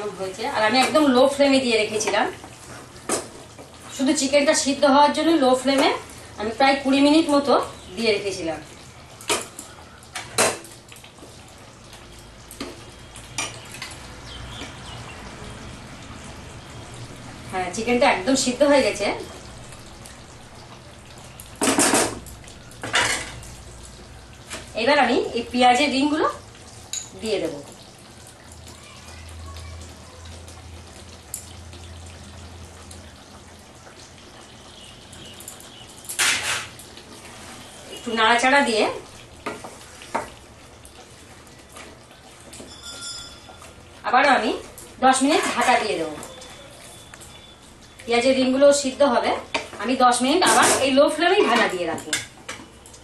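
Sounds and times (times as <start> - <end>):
gravy bubbling in a pot: 0.0 - 53.0
metal utensil clinking on pot: 42.5 - 43.8.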